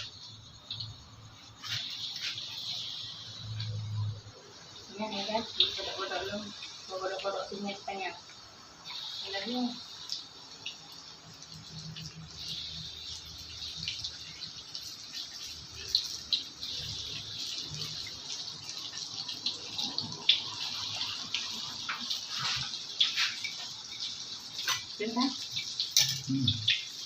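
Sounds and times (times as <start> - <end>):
food sizzling in hot oil: 0.0 - 27.0
oil crackles and pops: 5.4 - 27.0.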